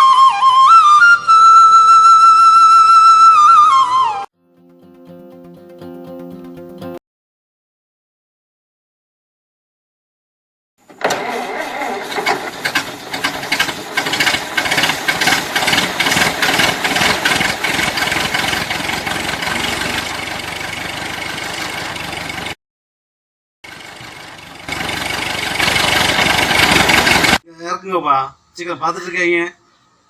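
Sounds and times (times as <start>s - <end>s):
engine running with knocking clatter: 11.9s - 22.6s, 23.6s - 27.4s.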